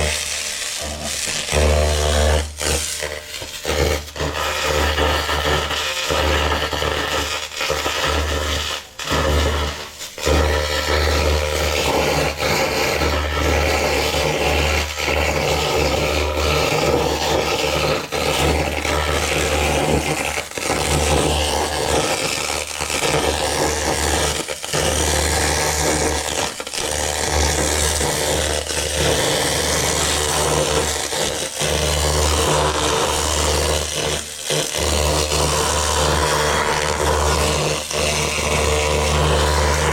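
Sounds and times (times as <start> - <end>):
laser cleaning scraping hiss: 0.0 - 11.6.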